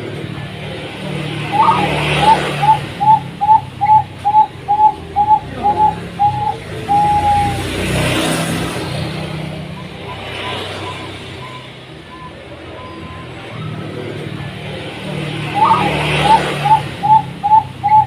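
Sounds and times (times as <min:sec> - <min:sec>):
dove cooing: 0:01.0 - 0:07.8, 0:13.8 - 0:18.0.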